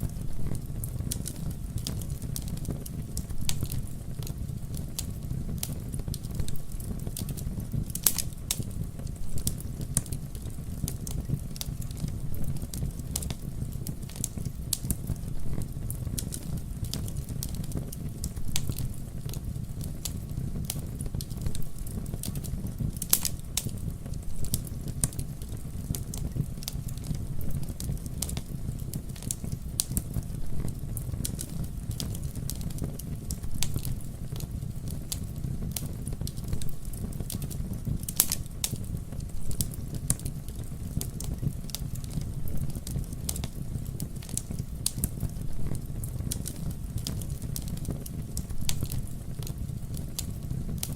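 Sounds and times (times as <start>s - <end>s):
fire popping loudly: 0.0s - 50.9s
wood fire crackling: 0.0s - 50.9s.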